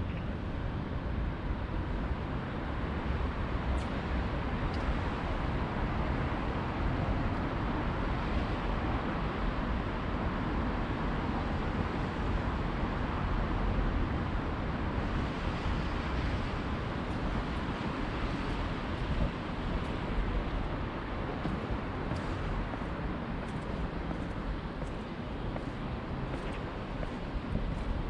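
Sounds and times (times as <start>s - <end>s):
distant traffic rumble: 15.2s - 28.0s.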